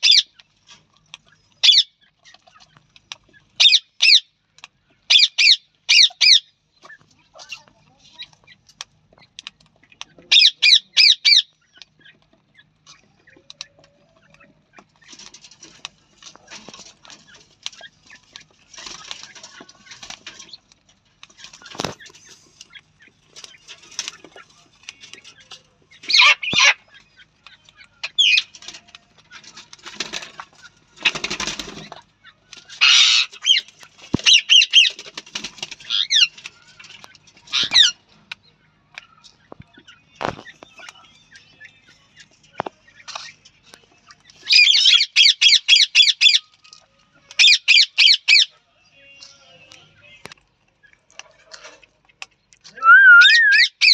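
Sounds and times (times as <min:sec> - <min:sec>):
birds calling loudly: 0:00.0 - 0:00.5, 0:01.2 - 0:04.3, 0:05.0 - 0:15.4, 0:21.3 - 0:38.6, 0:44.1 - 0:46.5, 0:47.4 - 0:48.5, 0:52.7 - 0:53.9
rustling and wing-flapping: 0:12.2 - 0:27.3, 0:28.1 - 0:38.3.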